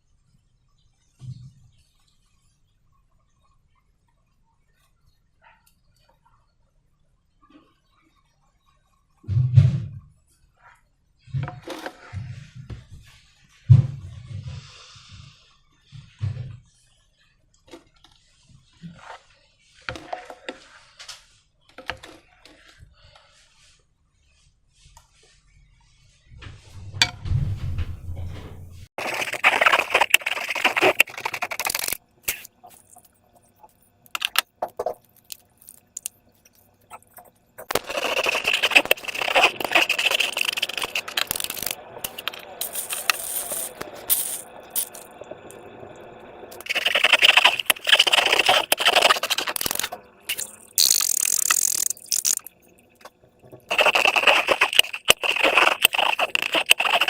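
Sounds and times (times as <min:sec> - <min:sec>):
slime squelching and crackling: 0:29.0 - 0:45.2, 0:46.6 - 0:52.6, 0:53.7 - 0:57.0.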